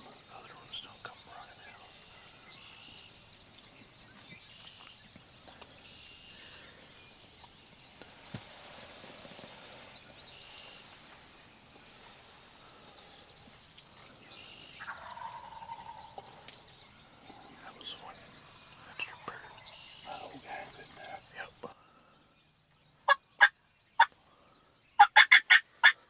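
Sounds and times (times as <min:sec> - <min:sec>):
birds whistling: 0:00.0 - 0:26.0
low long bird call: 0:11.8 - 0:22.3.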